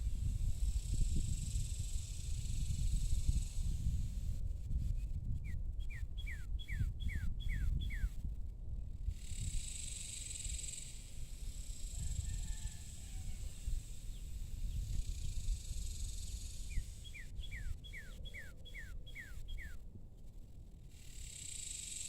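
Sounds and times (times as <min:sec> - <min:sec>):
insect trill: 0:00.2 - 0:04.3, 0:09.1 - 0:19.8, 0:20.9 - 0:22.0.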